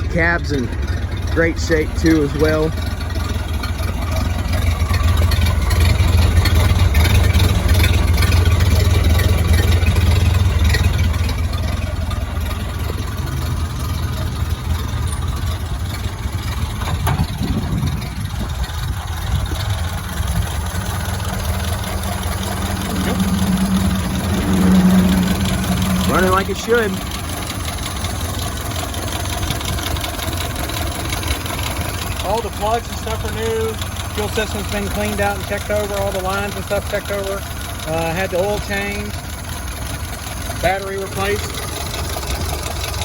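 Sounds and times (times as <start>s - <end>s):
truck engine idling: 0.0s - 43.0s
higher steady hum: 19.9s - 28.2s.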